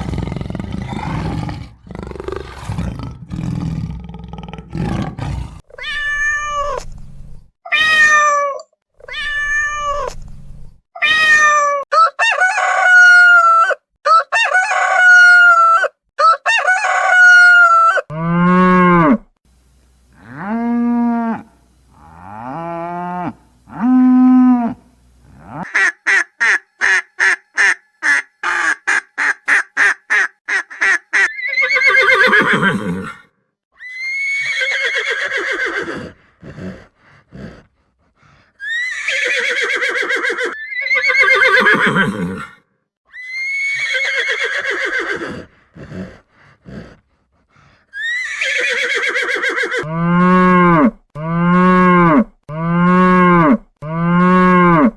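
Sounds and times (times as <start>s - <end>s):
cow mooing: 18.1s - 19.2s, 20.2s - 25.7s, 49.8s - 54.9s
horse neighing: 31.3s - 33.2s, 33.9s - 36.8s, 38.6s - 42.6s, 43.2s - 46.2s, 48.0s - 50.9s.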